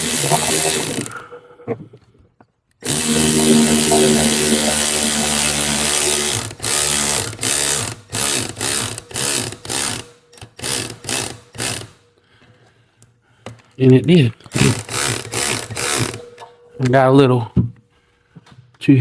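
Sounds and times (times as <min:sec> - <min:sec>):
ratchet clicking: 0:00.0 - 0:01.2, 0:02.8 - 0:12.0, 0:14.5 - 0:16.4.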